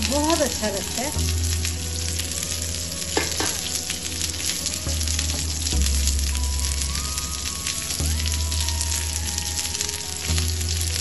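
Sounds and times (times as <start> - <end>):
onions sizzling on grill pan: 0.0 - 11.0.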